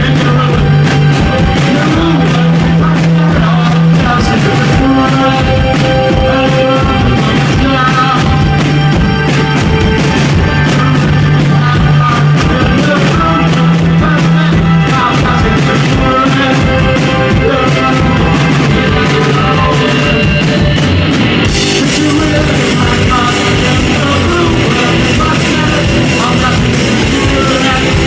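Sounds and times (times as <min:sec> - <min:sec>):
rock band playing: 0:00.0 - 0:28.0.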